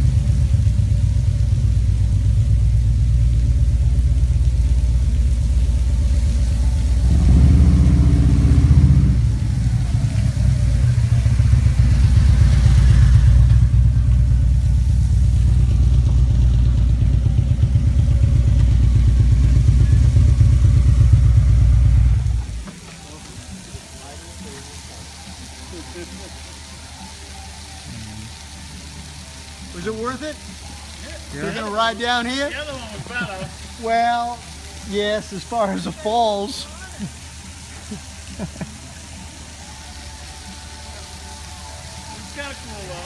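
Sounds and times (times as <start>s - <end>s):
vehicle engine accelerating: 0.0s - 22.7s
road rumble: 0.0s - 43.0s.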